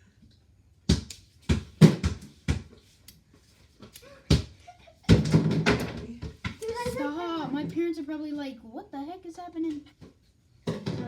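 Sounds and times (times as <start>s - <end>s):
basketball bouncing on hard floor: 0.9s - 2.8s, 5.1s - 6.6s, 10.7s - 11.0s.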